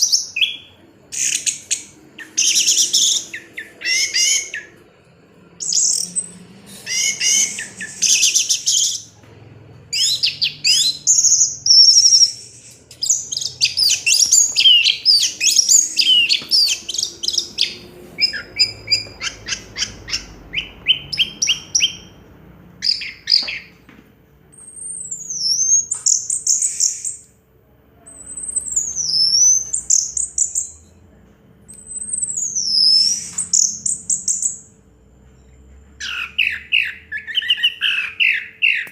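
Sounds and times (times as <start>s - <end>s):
thrush singing: 0.4s - 23.7s.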